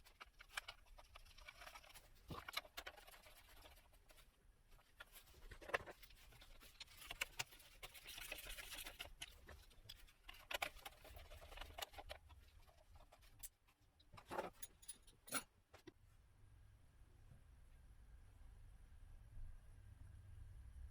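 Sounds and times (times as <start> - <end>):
rustling: 0.0 - 14.8.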